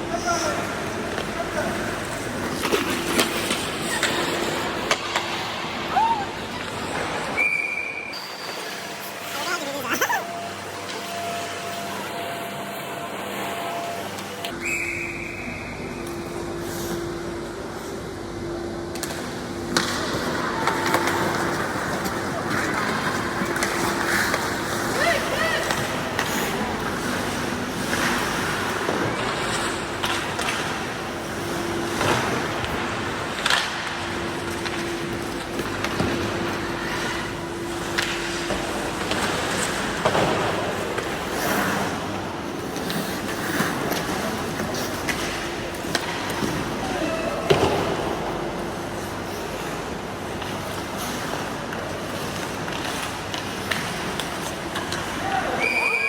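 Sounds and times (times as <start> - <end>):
sports hall game noise: 0.0 - 56.0
skates scraping on ice: 0.1 - 7.5, 19.7 - 55.7.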